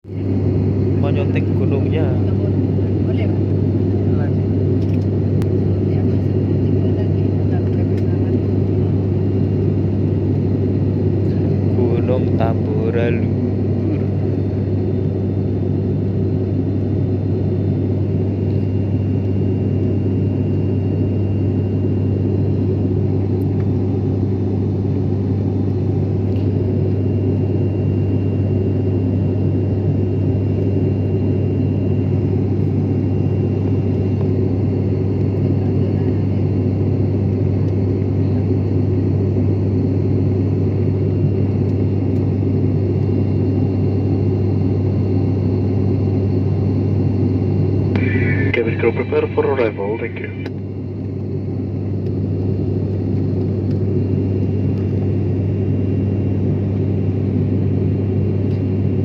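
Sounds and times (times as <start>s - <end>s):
airliner engine drone: 0.0s - 59.0s
faint high whine: 47.6s - 50.6s.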